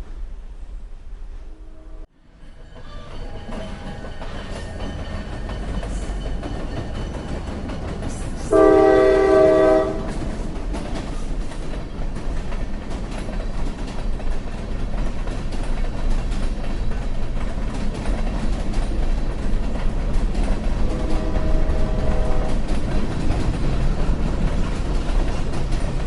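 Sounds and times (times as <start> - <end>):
moving train running noise: 0.0 - 26.0
train horn blast: 1.4 - 2.1, 8.4 - 10.3, 20.8 - 22.7.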